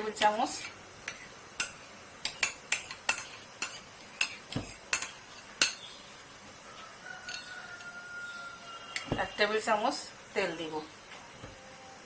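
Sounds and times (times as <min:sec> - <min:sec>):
spoon clinking against a bowl: 0:01.1 - 0:05.8, 0:07.2 - 0:08.0.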